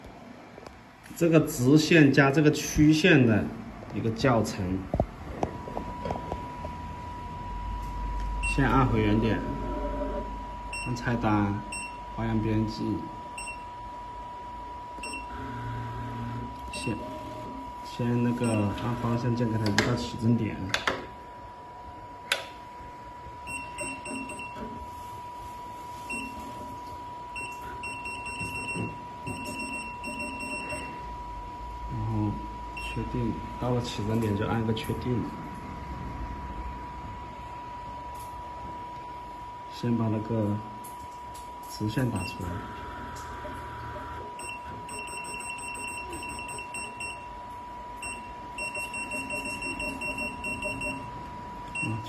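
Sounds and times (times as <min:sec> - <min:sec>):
high-pitched hum: 0:00.0 - 0:52.0
sewing machine beeping: 0:07.8 - 0:12.0, 0:13.4 - 0:13.8, 0:15.0 - 0:15.6, 0:16.2 - 0:19.4, 0:23.4 - 0:24.8, 0:26.0 - 0:31.0, 0:42.1 - 0:42.6, 0:44.4 - 0:47.4, 0:48.0 - 0:52.0
high-pitched electronic tones: 0:25.9 - 0:33.4, 0:44.4 - 0:47.4, 0:48.0 - 0:52.0.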